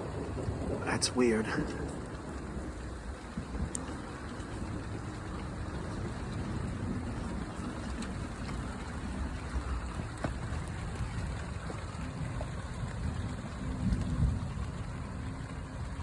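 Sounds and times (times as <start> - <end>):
low rumble: 0.0 - 7.6
rain falling: 0.0 - 16.0
raindrops ticking: 0.0 - 16.0.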